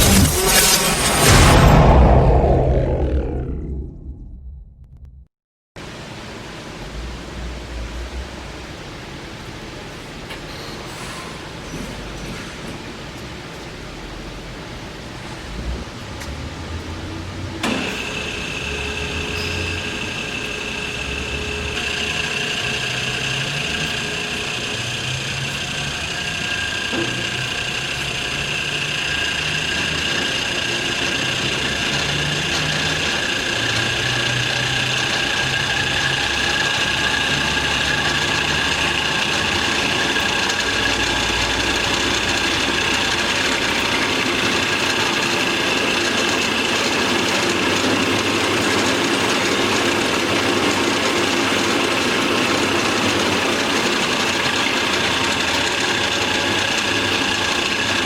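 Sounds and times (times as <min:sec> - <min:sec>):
band saw running with whine: 0:00.0 - 0:03.9, 0:16.2 - 0:58.0.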